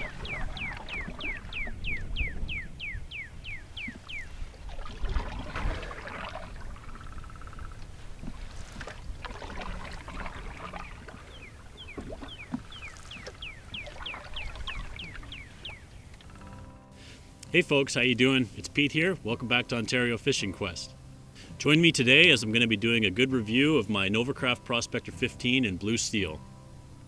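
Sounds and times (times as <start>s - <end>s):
bird calling rapid falling notes: 0.0s - 4.3s
wind and water rushing: 0.0s - 16.1s.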